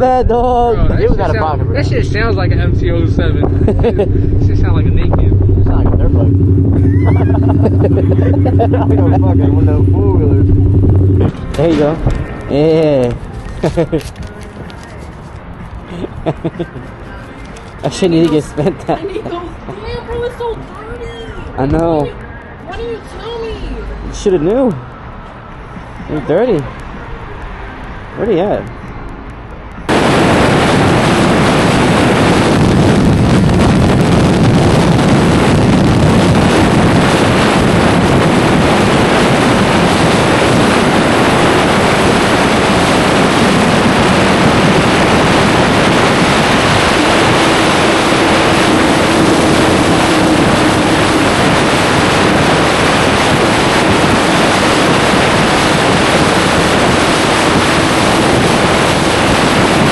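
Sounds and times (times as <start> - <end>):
wind rushing over microphone: 0.0 - 25.0, 29.4 - 59.9
faint engine note: 1.0 - 11.6.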